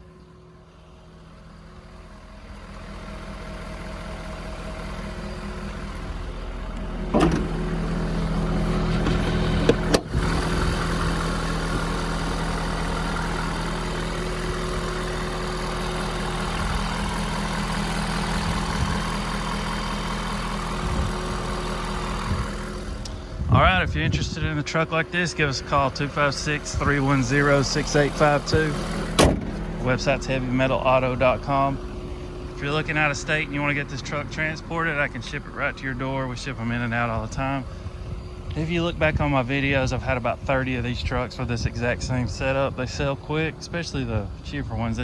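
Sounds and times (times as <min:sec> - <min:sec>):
air compressor running: 0:01.6 - 0:23.6.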